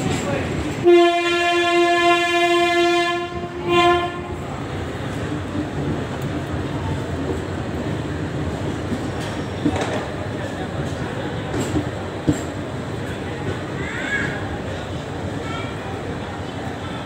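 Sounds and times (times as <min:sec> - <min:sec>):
train coaches running noise: 0:00.0 - 0:17.0
locomotive air horn blasts: 0:00.8 - 0:04.4.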